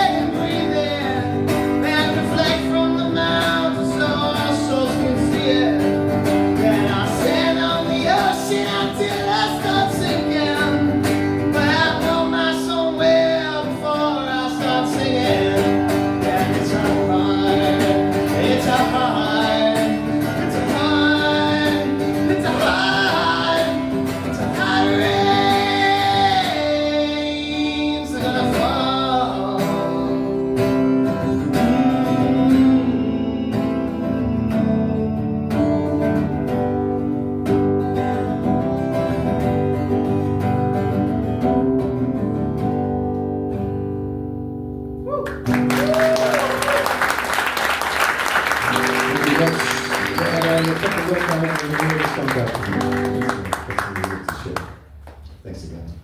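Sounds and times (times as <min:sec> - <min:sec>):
man singing: 0:00.0 - 0:35.1
fast-strummed guitar: 0:00.0 - 0:44.2, 0:48.3 - 0:54.2.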